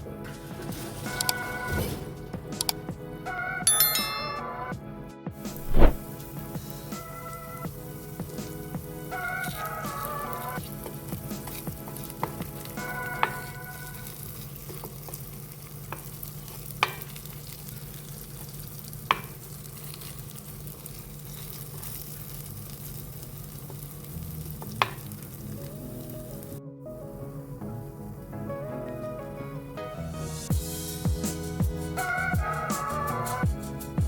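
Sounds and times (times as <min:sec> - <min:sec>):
omelette sizzling in a pan: 0:05.5 - 0:26.6
utensil tapping pan: 0:09.4 - 0:13.9.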